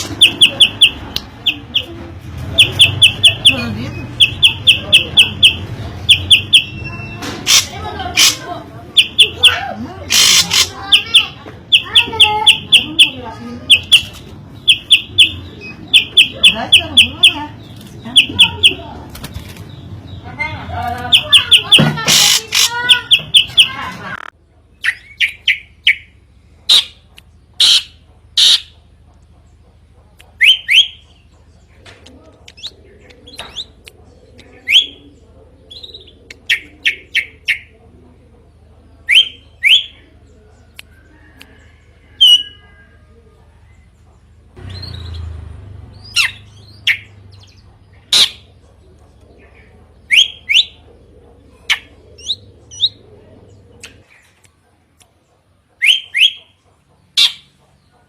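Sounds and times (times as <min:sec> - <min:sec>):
drongo calling: 0:00.0 - 0:19.0, 0:19.7 - 0:37.8.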